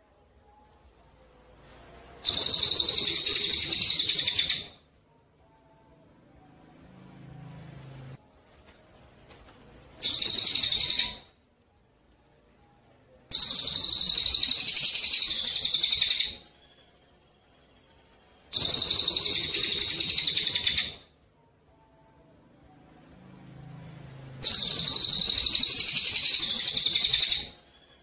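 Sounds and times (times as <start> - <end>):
songbird trilling: 2.3 - 4.8, 10.0 - 11.3, 13.3 - 16.4, 18.5 - 21.0, 24.4 - 27.6.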